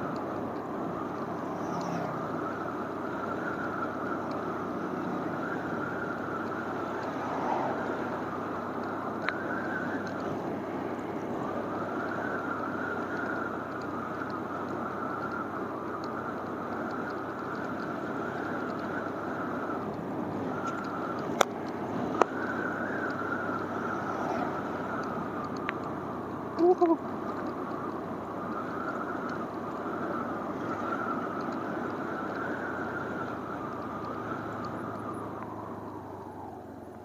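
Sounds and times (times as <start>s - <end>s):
wind and road noise: 0.0s - 37.0s
sharp tick: 4.2s - 4.4s, 6.4s - 9.4s, 10.0s - 10.3s, 12.9s - 20.0s, 20.6s - 23.7s, 24.3s - 26.0s, 28.8s - 29.7s, 30.9s - 36.1s.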